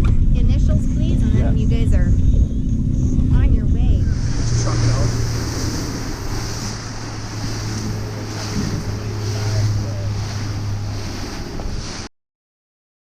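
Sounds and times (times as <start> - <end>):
boat motor running: 0.0 - 12.1
wind buffeting microphone: 0.0 - 12.1
water noise: 2.8 - 12.1.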